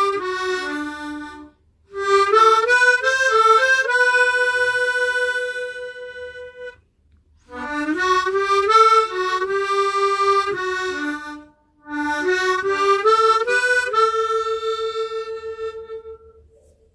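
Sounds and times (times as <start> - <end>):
tremolo harmonica playing: 0.0 - 6.8, 7.4 - 16.5.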